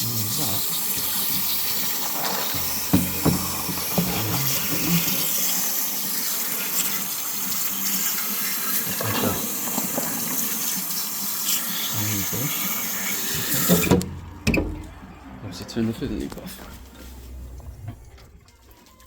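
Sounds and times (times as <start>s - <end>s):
water rushing through tube: 0.0s - 15.0s.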